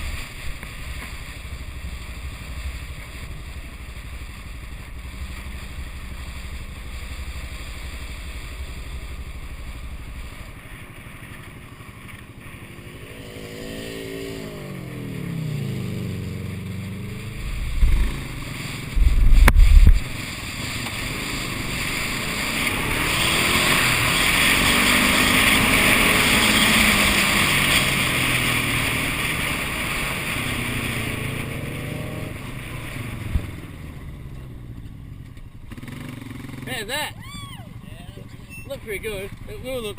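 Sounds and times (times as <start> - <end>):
tyre noise: 13.3 - 33.6
low thumps: 17.5 - 18.4, 19.0 - 20.1.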